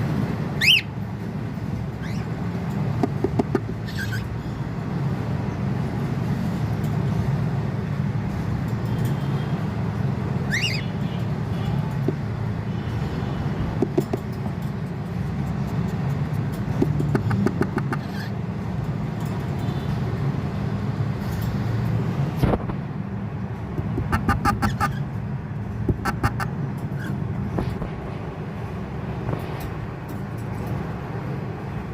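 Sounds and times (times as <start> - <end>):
cockatiels chattering: 2.0 - 2.3, 3.5 - 4.3, 10.5 - 10.8, 17.2 - 18.3, 23.9 - 25.0.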